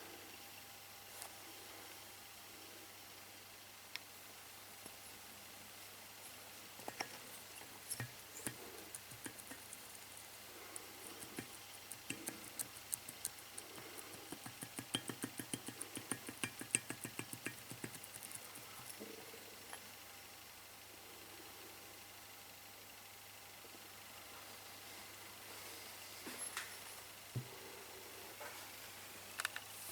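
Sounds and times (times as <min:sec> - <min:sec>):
metal tools clicking and tapping: 0:06.8 - 0:19.1.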